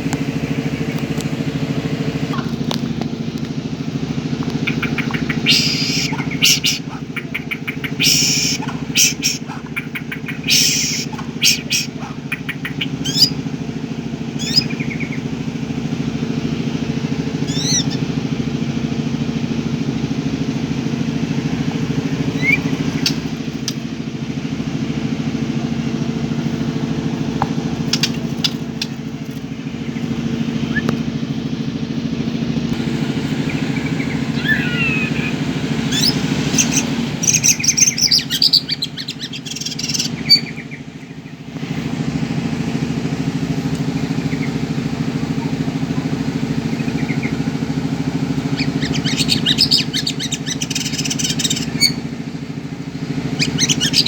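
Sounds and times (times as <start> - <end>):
low engine drone: 0.0 - 54.0
bird chirping and whistling: 4.6 - 13.4, 14.4 - 15.2, 17.4 - 18.1, 22.3 - 23.8, 30.6 - 31.0, 33.5 - 40.8, 48.5 - 52.1, 53.3 - 54.0.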